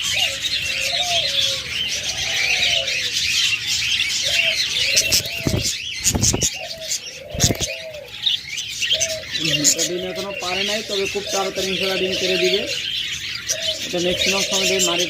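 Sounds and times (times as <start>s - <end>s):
doves cooing: 0.0s - 15.0s
small birds chirping: 0.0s - 15.0s
wings flapping: 5.0s - 7.8s.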